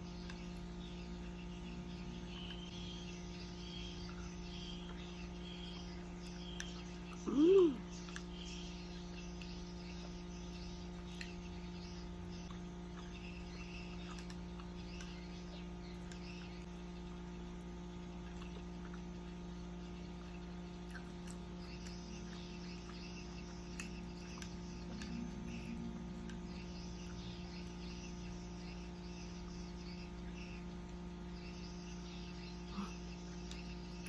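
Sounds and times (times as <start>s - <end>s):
steady electrical hum: 0.0s - 34.0s
chewing and mouth clicks: 5.7s - 8.6s, 12.2s - 17.3s, 18.0s - 28.1s.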